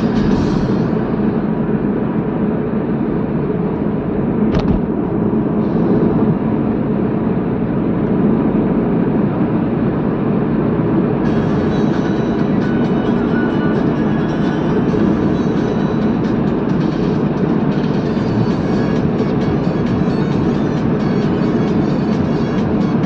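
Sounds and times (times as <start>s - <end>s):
car road and engine noise: 0.0s - 23.0s
short knock: 4.5s - 4.9s.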